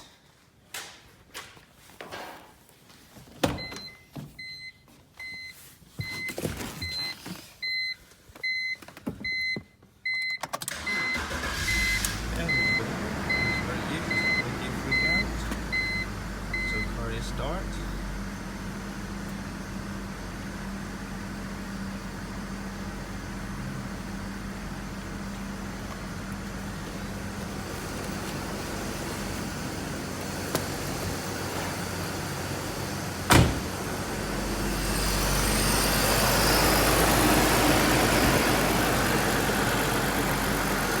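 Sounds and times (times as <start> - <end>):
car engine idling: 10.7 - 41.0.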